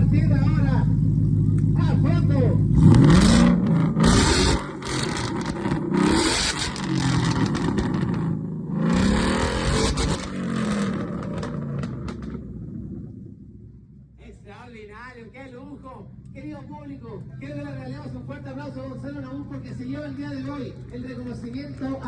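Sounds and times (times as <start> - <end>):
car engine revving: 0.0 - 13.8.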